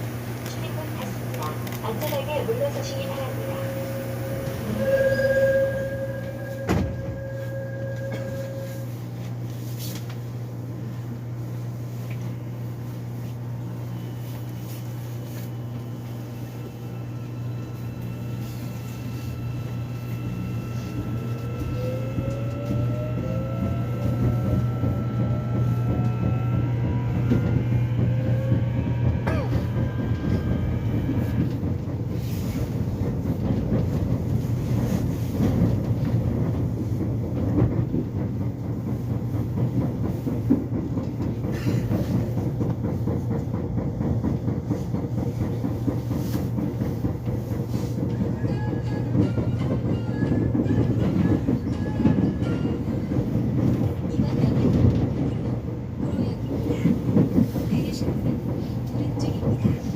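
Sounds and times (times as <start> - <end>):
train motor whine: 0.0 - 10.1, 13.9 - 36.6
train door warning tone: 0.6 - 9.5, 13.8 - 37.0, 47.7 - 58.3.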